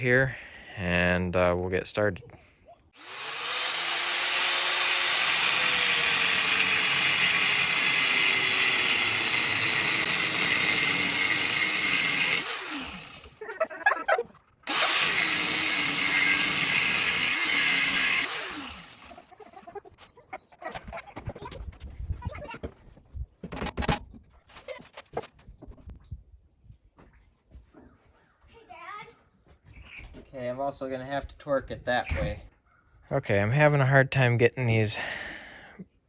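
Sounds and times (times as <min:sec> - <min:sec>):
angle grinder cutting steel: 0:03.0 - 0:13.4, 0:14.7 - 0:19.3.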